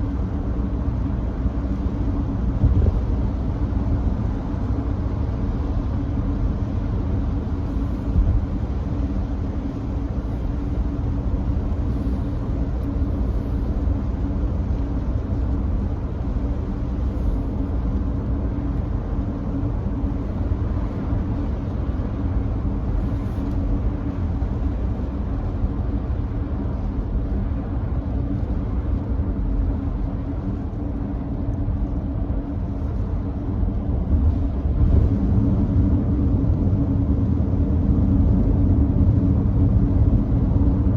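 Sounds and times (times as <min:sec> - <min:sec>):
tyres rumbling on wet road: 0:10.5 - 0:40.9.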